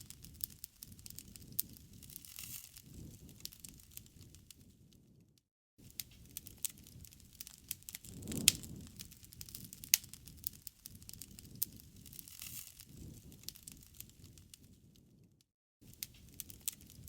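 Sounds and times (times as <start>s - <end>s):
campfire crackling and popping: 0.0s - 5.2s, 5.8s - 15.2s, 15.8s - 17.0s
low rush of flame: 6.2s - 15.2s.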